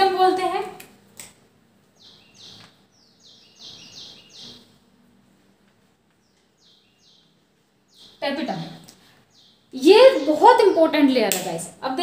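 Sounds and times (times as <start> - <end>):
faint bird chirping: 1.8 - 11.9.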